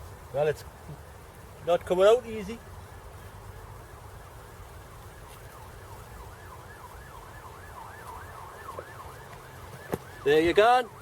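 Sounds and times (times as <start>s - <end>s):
faint siren yelping: 3.5s - 11.0s.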